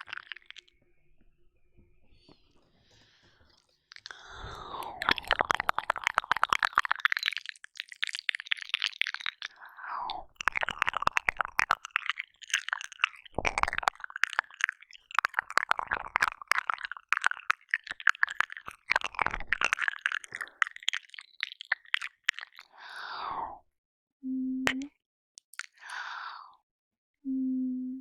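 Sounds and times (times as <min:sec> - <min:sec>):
wet mouth licking and smacking: 0:00.0 - 0:00.7, 0:03.9 - 0:23.0, 0:25.4 - 0:26.1.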